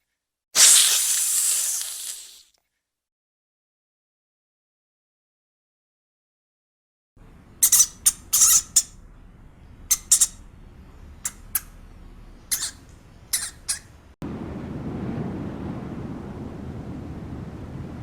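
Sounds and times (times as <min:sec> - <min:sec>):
animal squeaking: 0:07.6 - 0:09.0, 0:09.8 - 0:10.6, 0:11.2 - 0:14.1.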